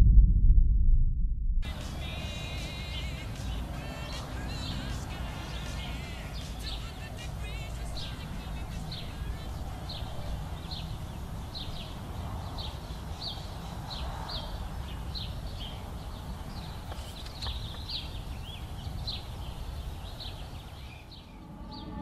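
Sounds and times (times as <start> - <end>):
low outdoor rumble: 0.0 - 12.7
bird chirping: 1.6 - 22.0.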